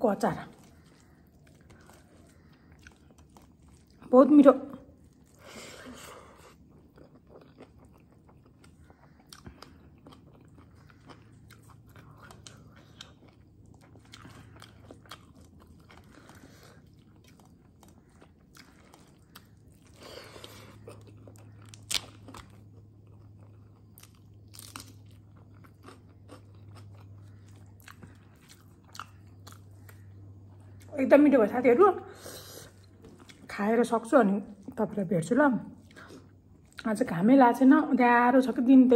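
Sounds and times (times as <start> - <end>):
low steady hum: 0.0 - 38.9
person chewing food: 0.5 - 4.1, 4.9 - 30.9, 32.2 - 33.5.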